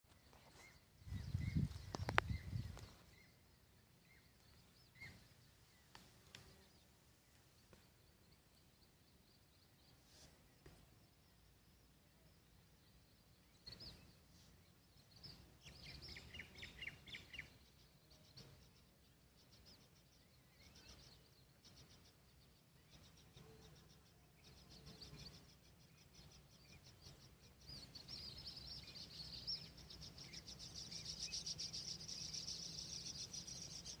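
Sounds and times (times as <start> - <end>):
high chirps of birds or insects: 0.1 - 34.0.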